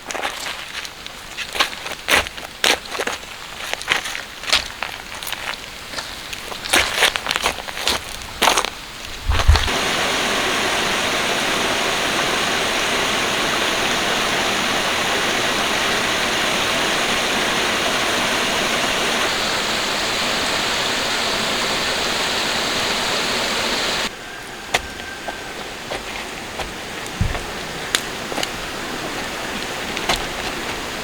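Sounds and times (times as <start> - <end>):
running water rushing: 9.0 - 24.1, 25.4 - 31.0.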